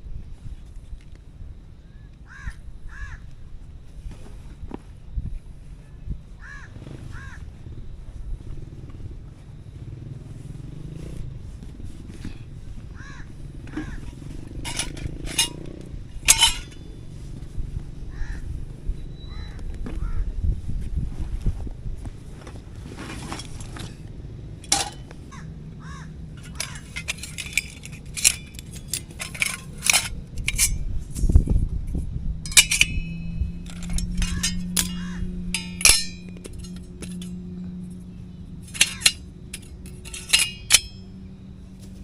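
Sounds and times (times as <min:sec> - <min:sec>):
low hum: 0:07.5 - 0:19.3, 0:20.3 - 0:42.0
metal cookware clinking: 0:14.5 - 0:16.9, 0:24.6 - 0:25.2, 0:26.4 - 0:30.9, 0:32.4 - 0:37.9, 0:38.6 - 0:41.2.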